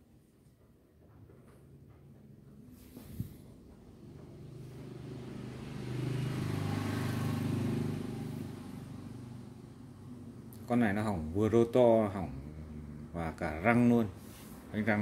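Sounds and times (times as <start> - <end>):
vehicle engine passing by: 1.8 - 15.0.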